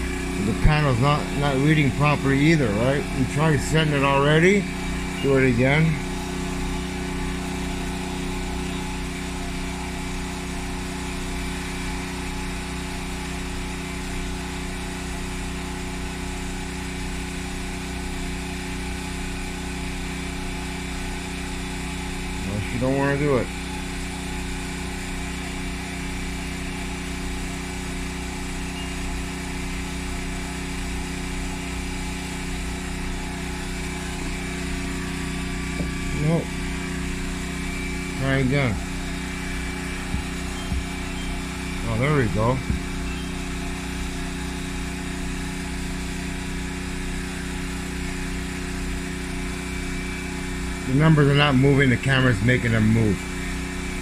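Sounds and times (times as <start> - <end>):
low machine hum: 0.0 - 54.0
thin high whine: 31.8 - 46.4.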